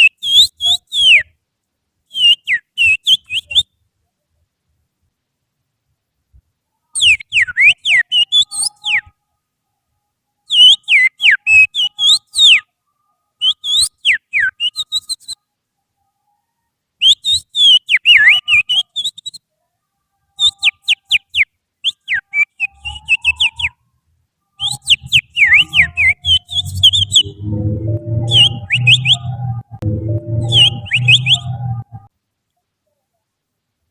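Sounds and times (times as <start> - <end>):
finger whistling birdsong: 20.4 - 23.8, 24.6 - 27.4, 28.2 - 29.4, 30.5 - 31.6
low steady hum: 25.7 - 32.5.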